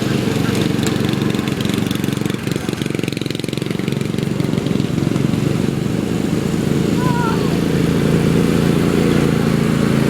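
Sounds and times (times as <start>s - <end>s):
lawn mower engine running: 0.0s - 10.0s.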